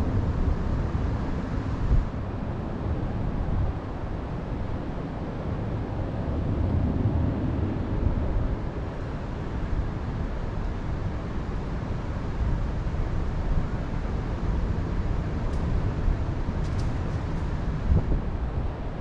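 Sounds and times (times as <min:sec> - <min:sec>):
wind rushing over microphone: 0:13.4 - 0:19.0.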